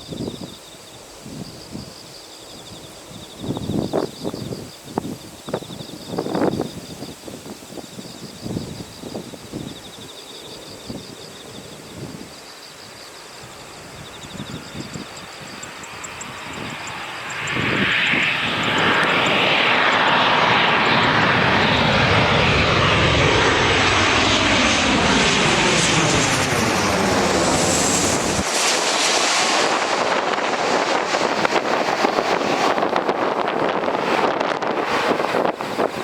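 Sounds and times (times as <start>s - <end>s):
wind on microphone: 0.0s - 12.4s, 13.4s - 36.0s
falling jet whine: 0.0s - 36.0s
jet plane passing overhead: 0.0s - 36.0s.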